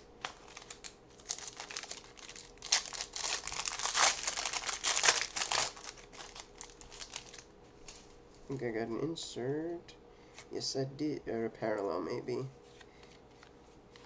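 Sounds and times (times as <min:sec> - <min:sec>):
plastic wrapper crinkling and tearing: 0:00.2 - 0:07.5.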